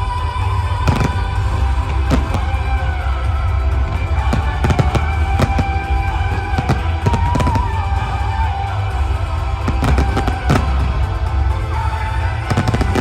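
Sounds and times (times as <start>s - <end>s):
loud music with deep bass: 0.0s - 13.0s
fireworks bangs and crackles: 0.2s - 13.0s.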